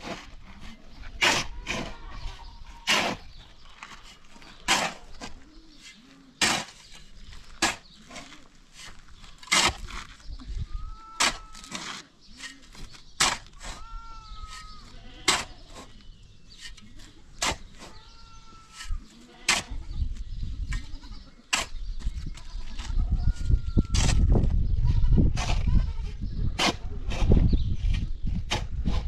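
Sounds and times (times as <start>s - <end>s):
goats bleating: 18.1s - 20.0s, 20.7s - 21.4s.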